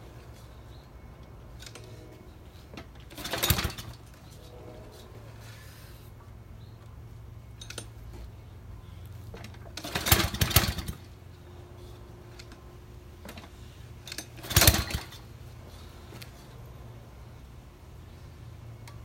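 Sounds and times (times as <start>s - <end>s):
small gasoline engine cranking: 1.6s - 2.0s, 2.9s - 4.2s, 9.4s - 11.2s, 13.3s - 15.3s.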